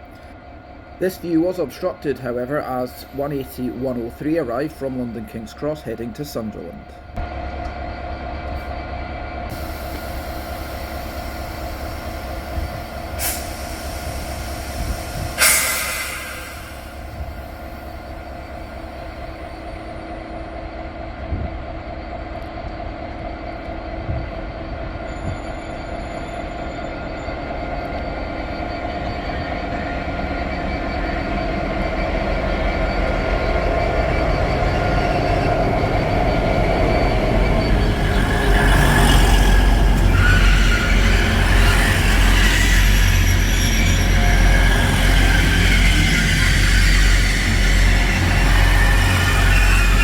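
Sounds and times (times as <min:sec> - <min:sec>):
diesel train engine: 0:00.0 - 0:50.0
train wheels on rails: 0:00.0 - 0:50.0
high-pitched wheel squeal: 0:25.0 - 0:50.0.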